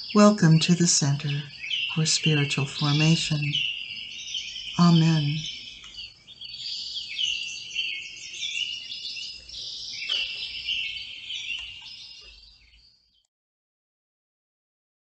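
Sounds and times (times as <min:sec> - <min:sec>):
songbirds chirping and singing: 0:00.0 - 0:13.2.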